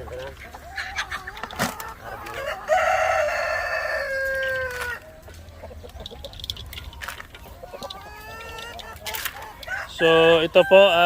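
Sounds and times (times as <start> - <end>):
chickens clucking faintly: 0.0 - 11.0
rooster crowing: 2.3 - 5.0, 9.6 - 11.0.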